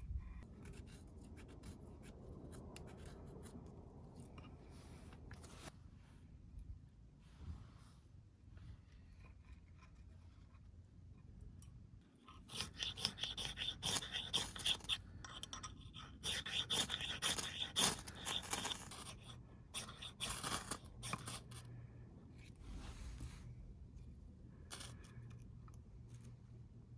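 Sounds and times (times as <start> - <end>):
scraping and rubbing strokes: 0.0 - 6.3, 12.2 - 21.7, 22.3 - 25.3.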